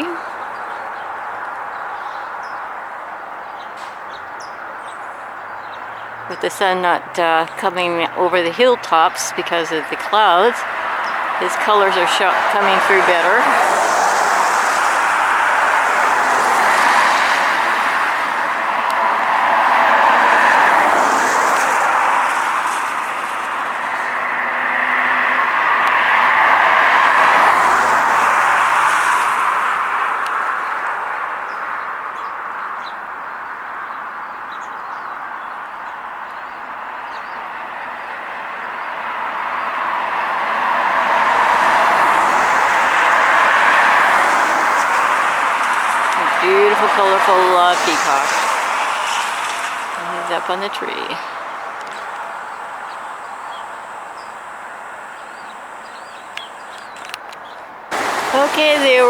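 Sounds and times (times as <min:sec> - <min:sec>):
small birds chirping: 0:00.0 - 0:13.6, 0:44.8 - 0:59.0
road traffic hiss: 0:00.0 - 0:59.0
outdoor rushing hiss: 0:57.9 - 0:59.0.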